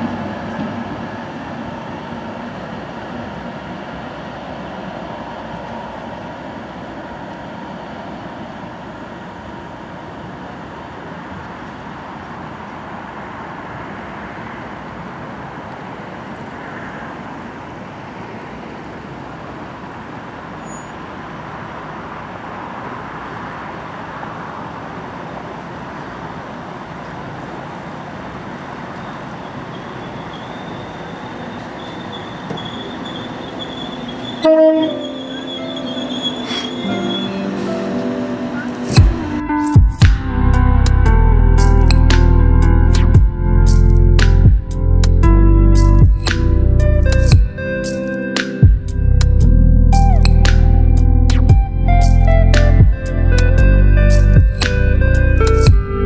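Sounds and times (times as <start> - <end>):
diesel trains running: 0.0 - 56.0
high brake squeal: 20.5 - 21.2, 28.8 - 39.7
train horn toot: 33.7 - 39.5.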